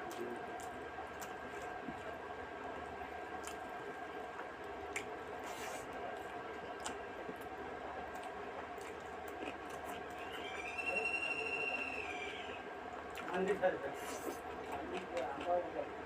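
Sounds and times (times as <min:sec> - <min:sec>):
steady background hum: 0:00.0 - 0:16.0
wet squishing chewing: 0:00.1 - 0:10.7, 0:13.0 - 0:13.4, 0:14.0 - 0:15.7.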